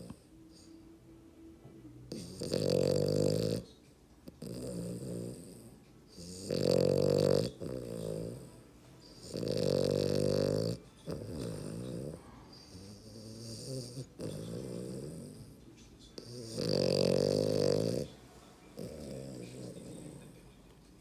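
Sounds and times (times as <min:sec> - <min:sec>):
dog snoring: 0:00.0 - 0:00.9, 0:02.1 - 0:20.6.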